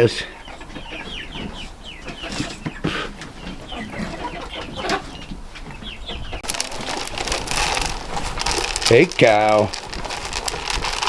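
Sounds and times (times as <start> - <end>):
chickens clucking: 0.0 - 11.0
dense rustling hiss: 6.4 - 11.0.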